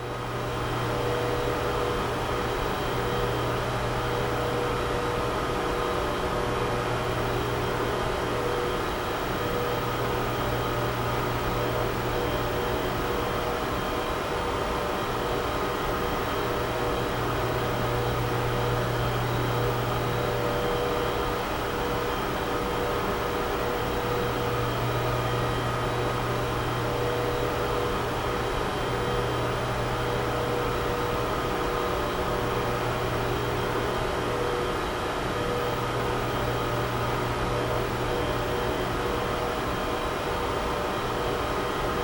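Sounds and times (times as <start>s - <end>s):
cooling fans whirring: 0.0s - 42.0s.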